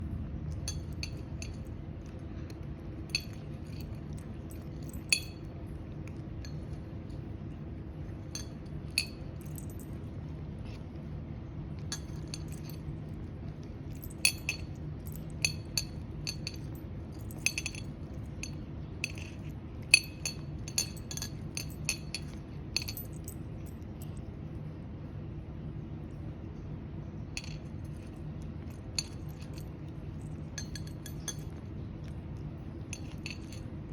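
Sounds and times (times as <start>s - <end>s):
cat eating crunchily: 0.0s - 33.9s
steady low hum: 0.0s - 33.9s.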